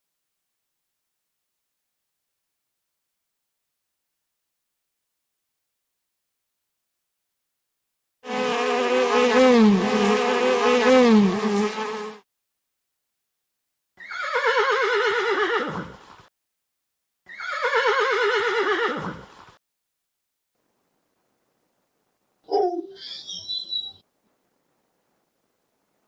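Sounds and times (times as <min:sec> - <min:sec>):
horse whinnies: 0:14.0 - 0:16.0, 0:17.3 - 0:19.3, 0:22.5 - 0:24.0
long wavering animal call: 0:22.5 - 0:24.0.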